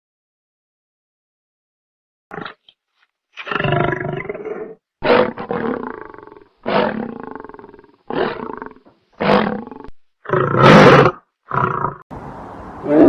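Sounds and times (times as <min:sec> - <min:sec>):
big cat roaring: 0:03.4 - 0:12.0.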